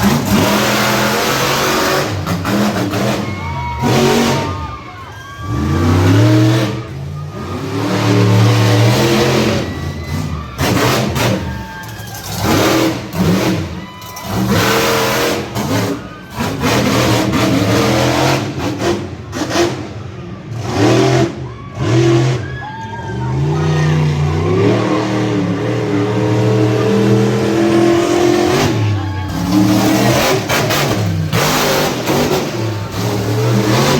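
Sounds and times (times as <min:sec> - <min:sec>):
truck engine revving: 0:00.0 - 0:33.9.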